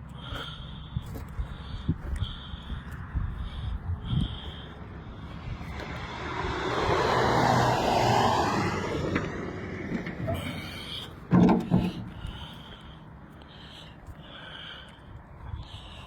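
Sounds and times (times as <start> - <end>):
vehicle passing by: 3.1 - 12.9.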